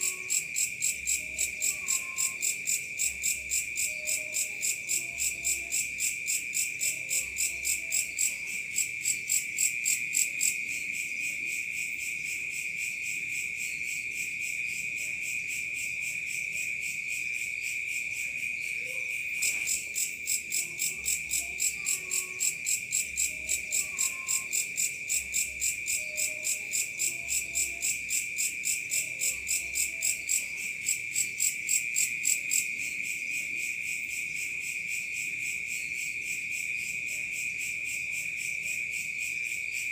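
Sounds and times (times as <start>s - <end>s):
insect chirping in pulses: 0.0s - 6.6s, 16.9s - 33.2s
cricket high trill: 0.0s - 10.6s, 18.6s - 33.2s.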